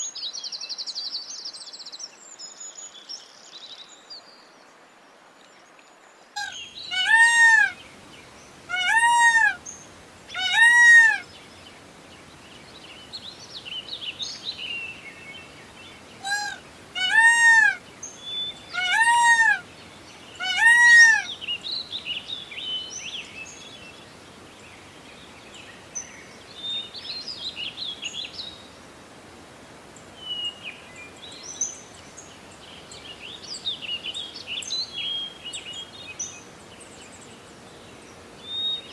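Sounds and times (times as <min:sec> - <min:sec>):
peacock calling: 0:06.4 - 0:07.8, 0:08.6 - 0:09.7, 0:10.3 - 0:11.3, 0:16.2 - 0:17.9, 0:18.6 - 0:19.7, 0:20.4 - 0:21.4
small birds chirping: 0:06.4 - 0:28.8.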